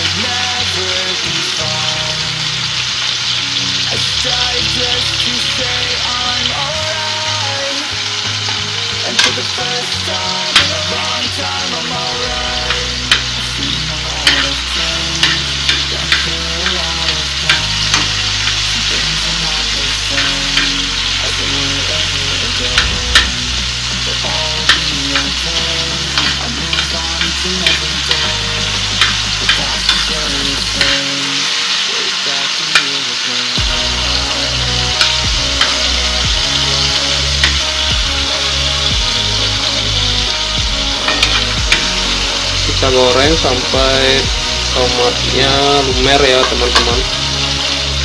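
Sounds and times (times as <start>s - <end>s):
food sizzling in hot oil: 0.0s - 48.0s
metal spoon clinking against pan: 14.2s - 18.7s, 26.1s - 31.4s.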